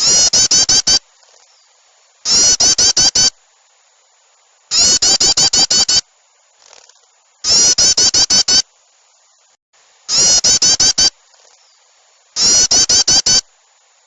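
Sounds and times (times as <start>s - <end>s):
songbirds chattering calls: 0.0s - 3.4s, 4.7s - 6.0s, 6.6s - 8.6s, 10.1s - 13.5s.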